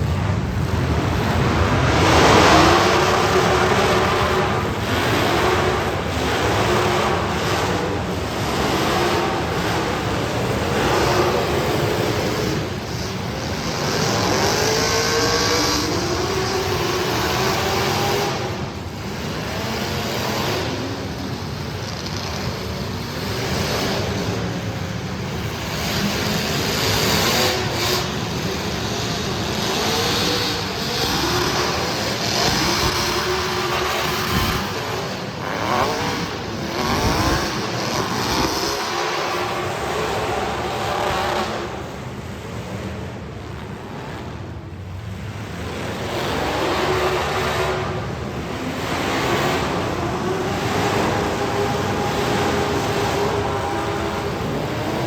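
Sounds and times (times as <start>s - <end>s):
race car engines accelerating: 0.0s - 55.0s.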